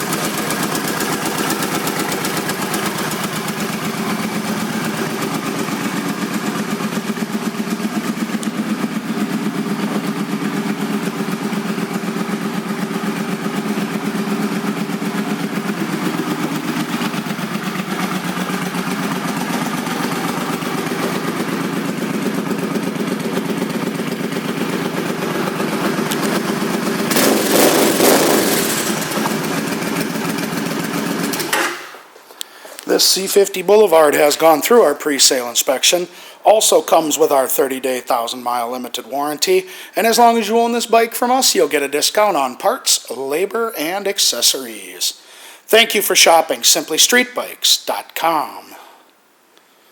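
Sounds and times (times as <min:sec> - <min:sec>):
motorcycle engine idling and revving: 0:00.0 - 0:32.0.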